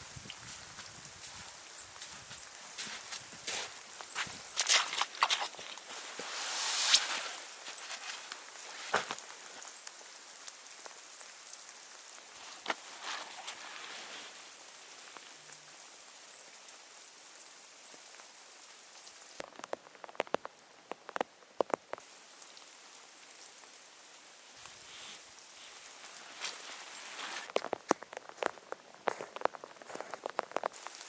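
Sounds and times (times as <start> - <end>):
falling snow pattering: 0.0 - 31.0
sharp crunches: 2.9 - 9.2.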